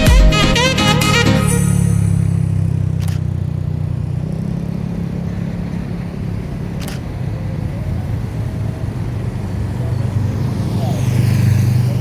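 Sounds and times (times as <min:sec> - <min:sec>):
short clicks: 0:03.0 - 0:03.3, 0:06.8 - 0:07.1.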